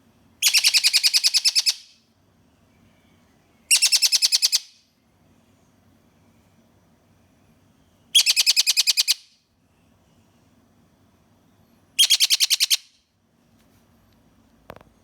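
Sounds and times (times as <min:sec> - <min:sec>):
parrot shrill calling: 0:00.4 - 0:01.8, 0:03.7 - 0:04.7, 0:08.2 - 0:09.2, 0:12.0 - 0:12.8.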